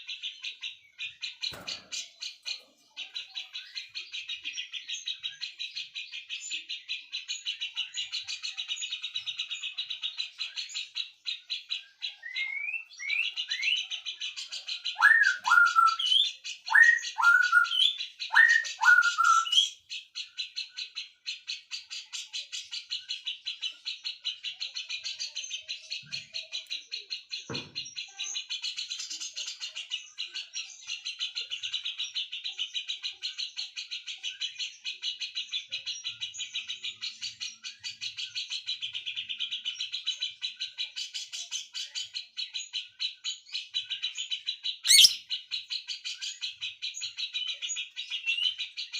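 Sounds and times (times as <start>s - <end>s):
songbird chattering trill: 44.0s - 45.5s.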